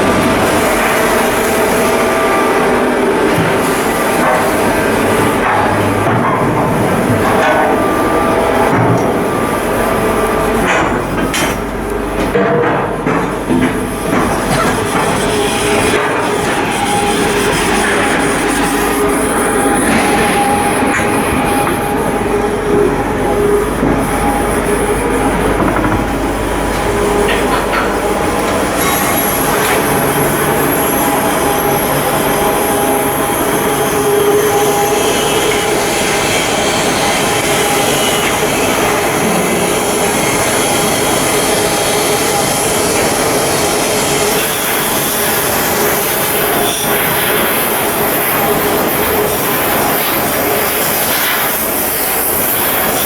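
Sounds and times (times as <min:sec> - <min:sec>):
industrial machinery noise: 0:00.0 - 0:53.0
loud mechanical noise: 0:00.0 - 0:53.0.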